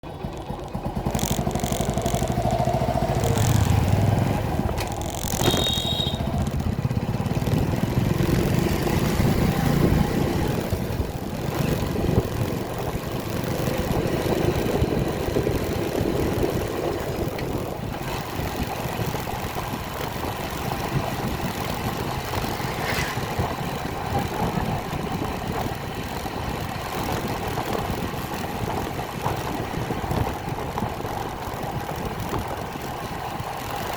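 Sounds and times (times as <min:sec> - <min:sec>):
motorcycle engine running: 0:00.0 - 0:33.9
short high beep: 0:05.4 - 0:06.3.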